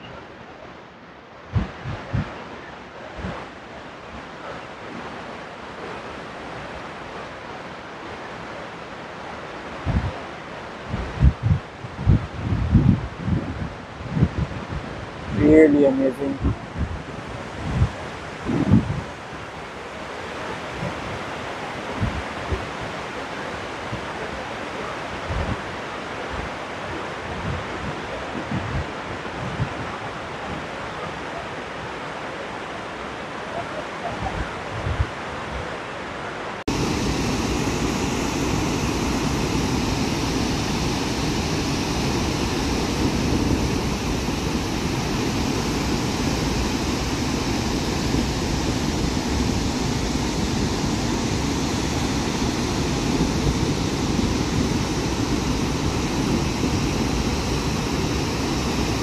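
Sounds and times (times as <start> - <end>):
wind gusting on microphone: 1.3 - 6.8, 9.7 - 59.0
waterfall roaring: 17.0 - 59.0.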